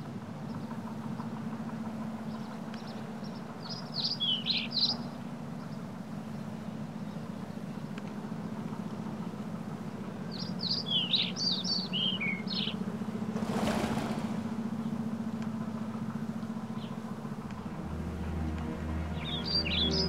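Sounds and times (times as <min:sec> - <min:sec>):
steady low hum: 0:00.0 - 0:20.0
high bird chirps: 0:02.4 - 0:05.2, 0:10.3 - 0:12.8, 0:19.2 - 0:20.0
whoosh: 0:13.4 - 0:14.6.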